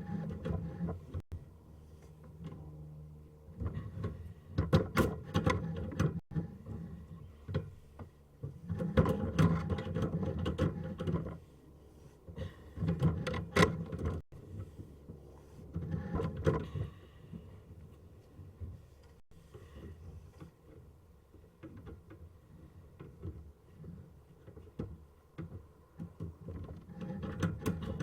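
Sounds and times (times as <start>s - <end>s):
cable rattling and scraping in drain: 3.6s - 11.5s, 12.3s - 17.4s, 18.6s - 28.0s.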